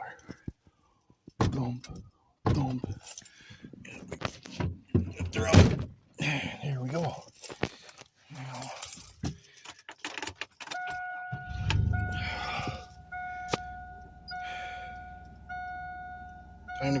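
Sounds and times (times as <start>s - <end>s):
keys rattling: 2.8s - 3.4s, 7.0s - 11.0s
warning chime dinging: 10.8s - 17.0s
truck engine cranking and idling: 11.1s - 17.0s.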